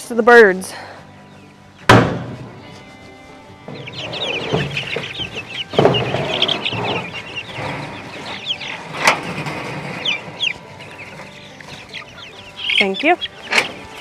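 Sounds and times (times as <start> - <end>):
chicks peeping: 1.2 - 14.0
sharp knock: 1.9 - 2.5
knocks and rustling: 3.6 - 11.9.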